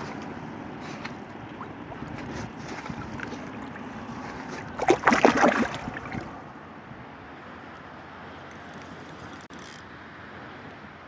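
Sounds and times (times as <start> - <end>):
fish splashing in water: 0.0 - 6.5
water lapping: 0.0 - 6.6
wind: 0.0 - 11.0.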